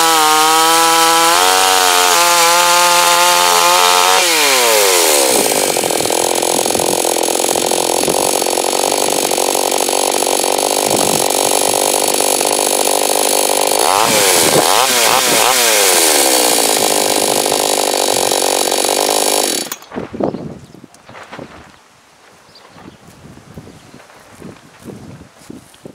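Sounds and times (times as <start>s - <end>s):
chainsaw running at high revs: 0.0s - 19.9s.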